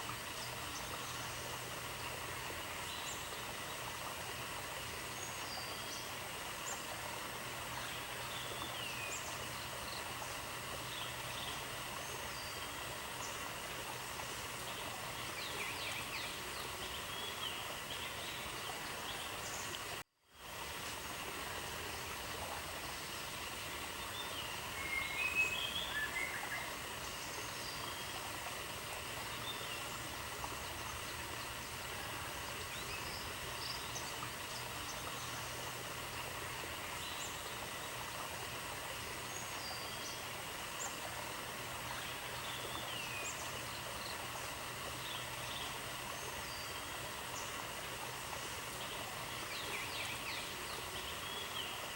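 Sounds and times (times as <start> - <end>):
outdoor ambient hiss: 0.0 - 51.9.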